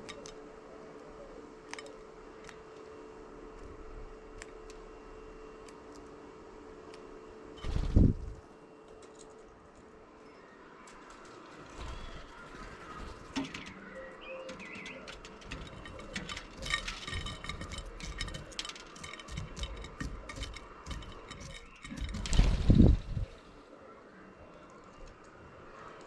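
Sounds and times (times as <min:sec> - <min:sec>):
bird chirps: 0:13.6 - 0:15.3
beaks ticking on a dish: 0:14.0 - 0:22.4.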